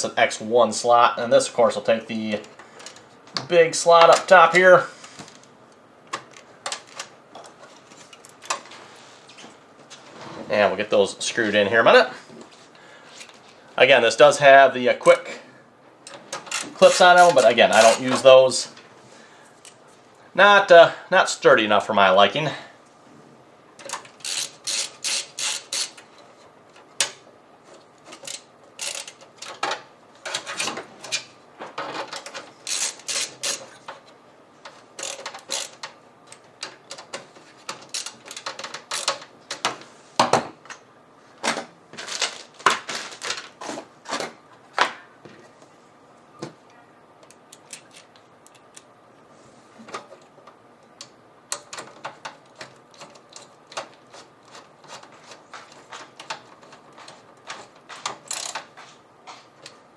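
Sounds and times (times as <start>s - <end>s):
computer parts clicking and tapping: 23.8s - 26.1s, 28.1s - 39.8s, 49.9s - 59.8s.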